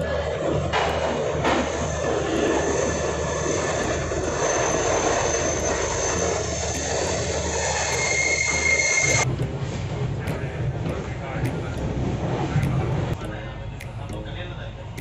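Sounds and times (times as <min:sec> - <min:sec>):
passenger train rumbling: 0:00.0 - 0:15.0
thin high-pitched whines: 0:01.6 - 0:09.3.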